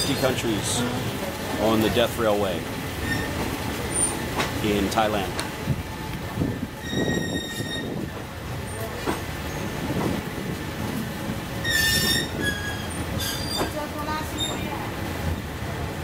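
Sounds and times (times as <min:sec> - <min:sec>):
train rumbling on rails: 0:00.0 - 0:16.0
metallic wheel squeals: 0:03.0 - 0:03.4, 0:06.8 - 0:08.0, 0:11.6 - 0:13.7.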